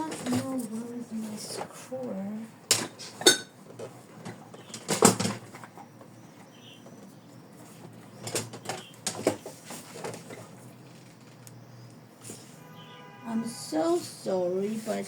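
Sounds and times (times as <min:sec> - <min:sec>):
tools clattering on a table: 0:02.7 - 0:05.9, 0:08.2 - 0:10.5.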